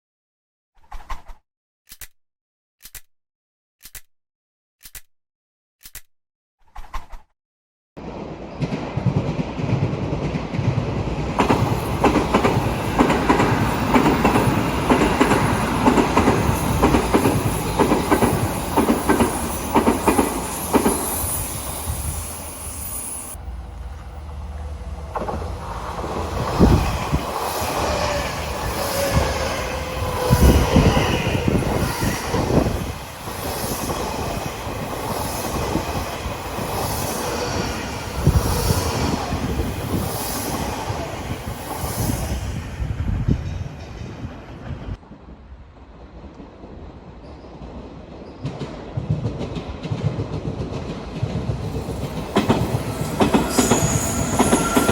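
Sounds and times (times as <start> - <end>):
electric train running past: 8.0 - 54.9
wheels clacking over rail joints: 11.4 - 21.3, 23.9 - 36.0, 48.4 - 54.9.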